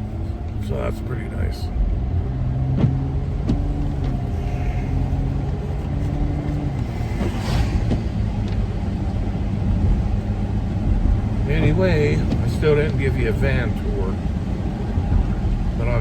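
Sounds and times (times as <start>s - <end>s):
engine and road rumble: 0.0s - 16.0s
low hum: 0.0s - 16.0s
hiss: 6.9s - 8.2s.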